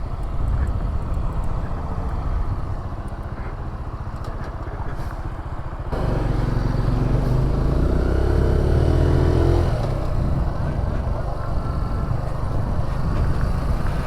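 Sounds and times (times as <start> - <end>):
motorcycle engine accelerating: 4.3 - 14.0.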